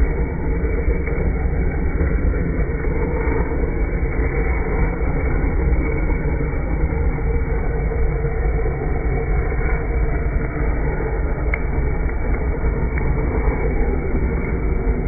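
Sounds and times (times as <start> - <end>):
firewood crackle: 0.0 - 15.0.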